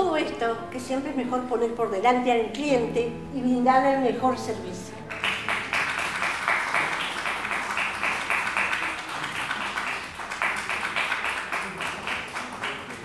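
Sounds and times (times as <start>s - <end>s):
audience applauding: 5.1s - 13.0s.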